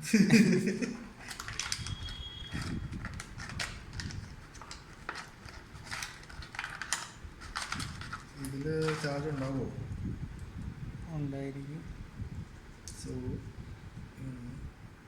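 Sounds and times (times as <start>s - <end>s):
packaging rustling and clicks: 1.2s - 9.7s.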